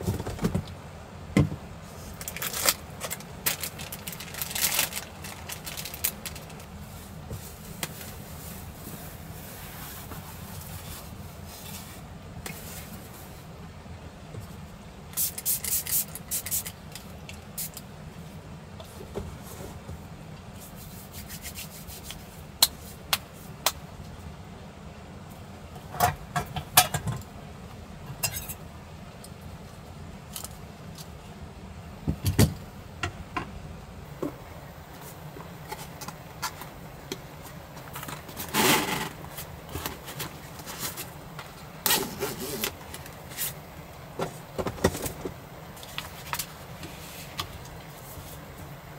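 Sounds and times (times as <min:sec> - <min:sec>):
rubbing and scraping: 0:20.6 - 0:22.4, 0:37.9 - 0:41.2, 0:41.8 - 0:43.6
steady low rumble: 0:27.2 - 0:38.4.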